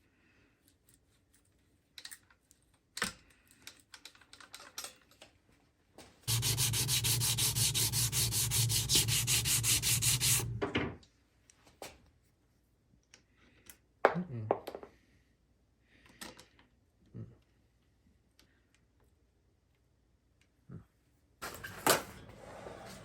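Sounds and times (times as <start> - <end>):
electric sander running: 6.3 - 10.6.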